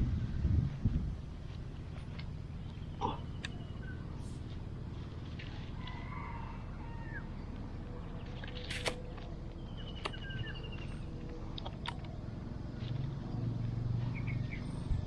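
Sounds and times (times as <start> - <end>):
low outdoor background: 0.0 - 15.0
small birds chirping: 1.4 - 15.0
bird trill: 2.6 - 4.2, 9.5 - 11.3.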